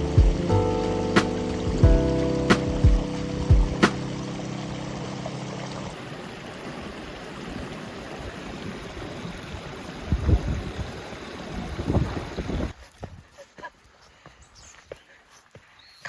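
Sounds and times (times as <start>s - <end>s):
low thumps: 0.0s - 4.5s
background music: 0.0s - 5.9s
rain hiss: 0.0s - 10.0s.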